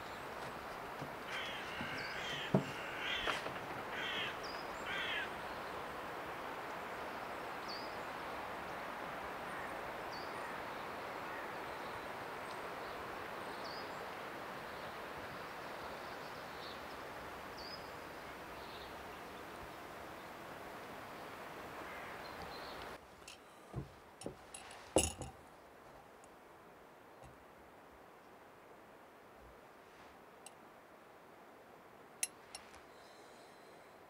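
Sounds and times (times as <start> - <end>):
rushing outdoor noise: 0.0 - 34.0
bird cawing: 1.2 - 5.4, 11.3 - 11.6, 21.8 - 22.6.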